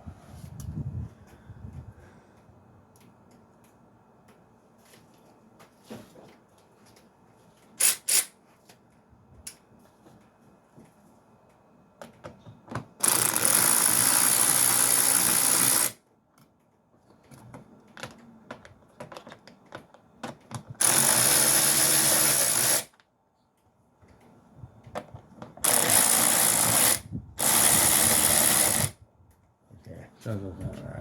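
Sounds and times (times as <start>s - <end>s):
power tool driving bolts: 7.8s - 8.4s, 12.8s - 16.0s, 20.5s - 23.0s, 25.6s - 29.0s.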